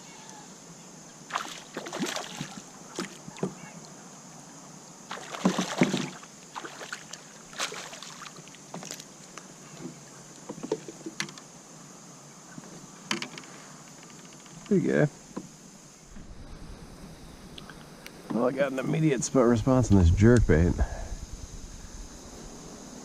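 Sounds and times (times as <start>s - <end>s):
knocks and clatter on a kayak: 9.8s - 11.4s, 13.1s - 14.7s.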